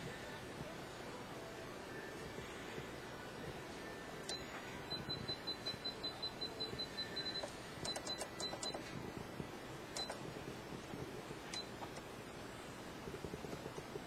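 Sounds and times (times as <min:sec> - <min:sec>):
sharp mechanical clicks: 0:07.4 - 0:08.8, 0:09.9 - 0:10.2.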